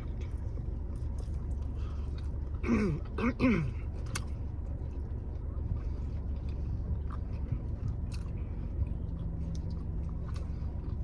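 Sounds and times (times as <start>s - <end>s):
chewing food: 0.0s - 11.0s
steady low hum: 0.0s - 11.0s
wet mouth clicks and smacks: 4.1s - 4.4s.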